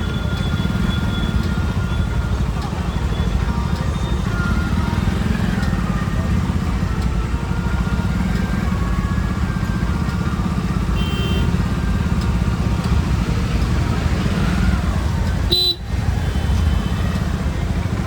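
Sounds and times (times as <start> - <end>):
motorcycle engine rumble: 0.0 - 18.0
car horn toots: 11.0 - 11.6, 15.5 - 16.4.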